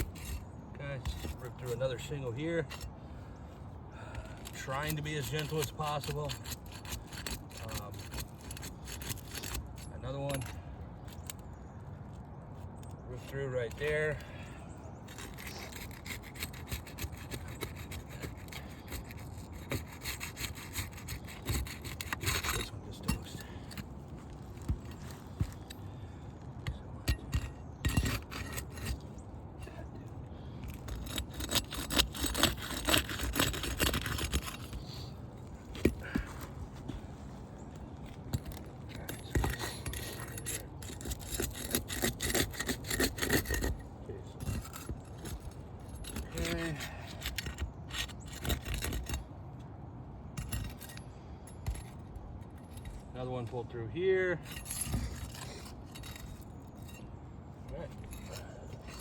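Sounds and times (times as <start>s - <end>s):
tool scraping under roof shingles: 0.0s - 3.0s, 4.0s - 11.7s, 13.2s - 49.3s, 50.3s - 53.2s, 54.3s - 59.0s
shingles tearing: 30.8s - 37.5s, 54.4s - 57.0s.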